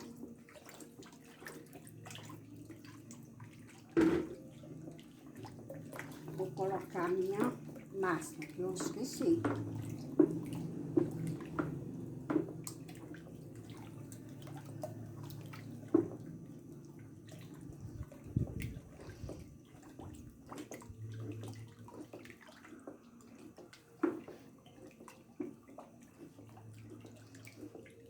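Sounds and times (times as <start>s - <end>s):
liquid sloshing in a bucket: 0.0s - 28.0s
paddle knocking against bucket: 3.9s - 4.4s, 8.6s - 13.0s, 15.9s - 16.4s.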